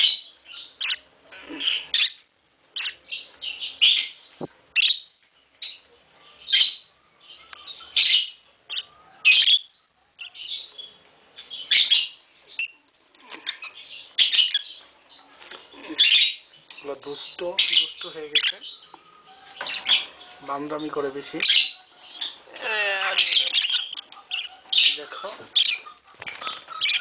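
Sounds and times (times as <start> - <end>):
lovebirds chirping: 0.0 - 27.0.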